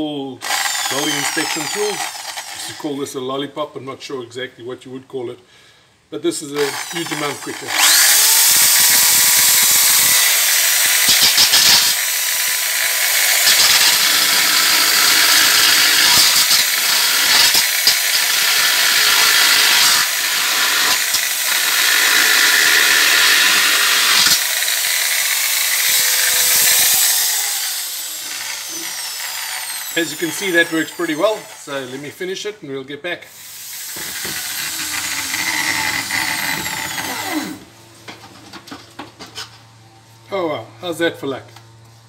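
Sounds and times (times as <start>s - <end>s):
power tool grinding metal: 0.4s - 2.8s, 6.6s - 32.1s, 33.3s - 37.7s.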